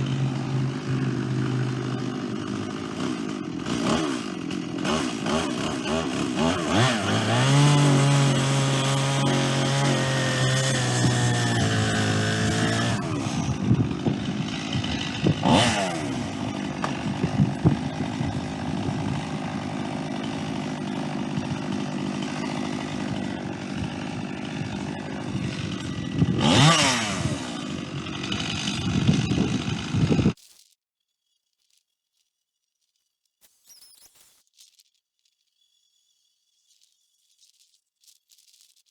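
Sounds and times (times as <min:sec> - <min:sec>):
chainsaw cutting through log: 0:00.0 - 0:30.4.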